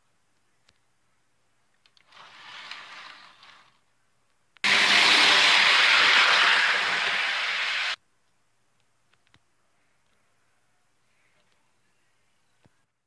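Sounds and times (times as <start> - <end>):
train rushing past: 4.6 - 8.0.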